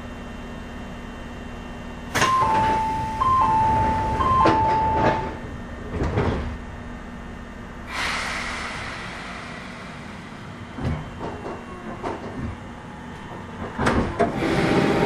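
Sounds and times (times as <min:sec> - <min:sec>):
low equipment hum: 0:00.0 - 0:14.0
train door thud: 0:02.1 - 0:06.6, 0:13.2 - 0:14.4
compressed air hiss: 0:07.9 - 0:10.6.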